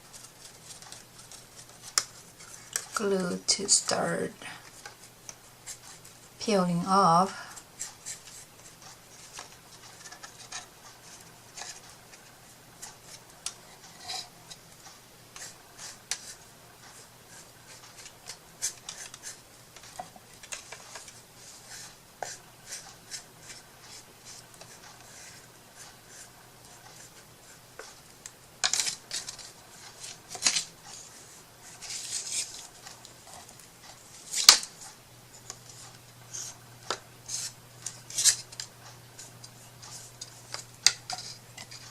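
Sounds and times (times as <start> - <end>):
hands scratching and rubbing wood: 0.0 - 3.4, 15.4 - 28.0, 28.6 - 34.7, 35.5 - 41.9.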